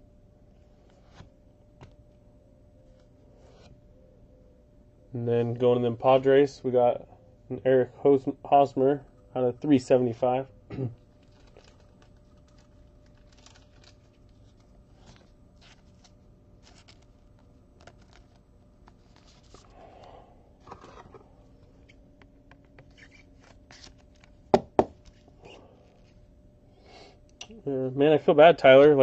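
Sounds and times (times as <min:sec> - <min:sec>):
cards rustling: 0:11.2 - 0:26.2.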